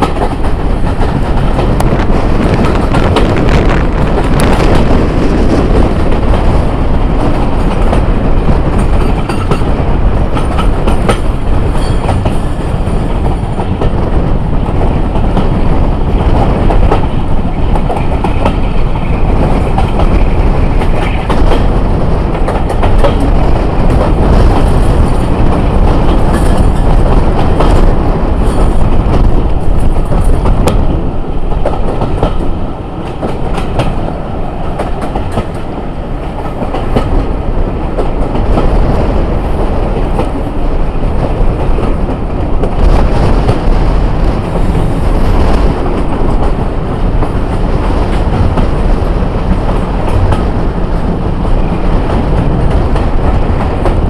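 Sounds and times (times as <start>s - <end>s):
passenger train running: 0.0s - 54.0s
wheels clicking over rail joints: 7.2s - 15.7s.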